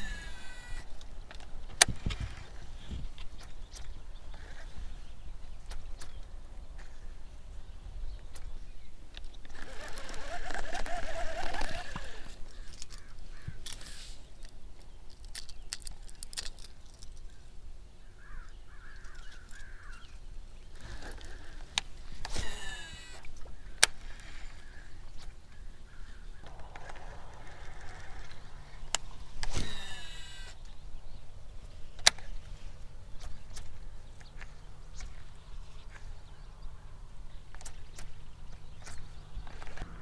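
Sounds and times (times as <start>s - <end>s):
fishing reel clicking: 0.0s - 1.0s, 9.5s - 14.1s, 22.3s - 24.2s, 26.8s - 30.6s
short falling whine: 26.4s - 30.7s.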